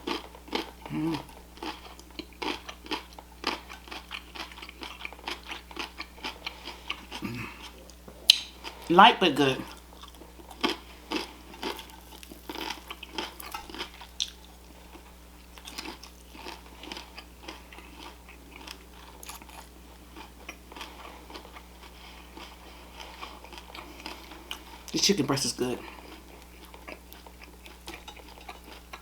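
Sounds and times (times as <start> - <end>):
person chewing crunchy food: 0.0 - 25.0, 25.6 - 29.0
mouth clicks: 7.9 - 8.5.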